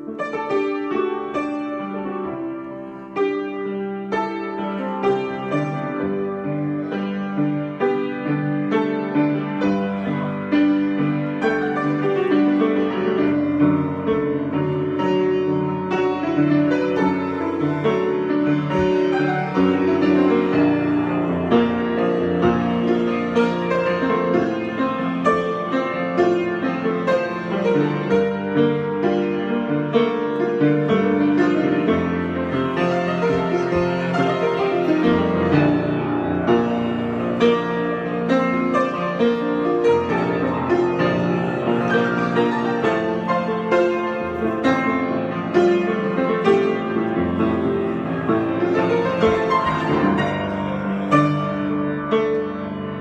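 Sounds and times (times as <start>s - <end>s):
piano playing: 0.0s - 53.0s.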